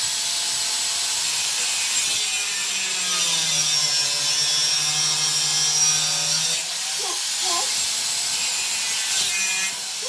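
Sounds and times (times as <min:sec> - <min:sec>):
angle grinder cutting steel: 0:00.6 - 0:10.0.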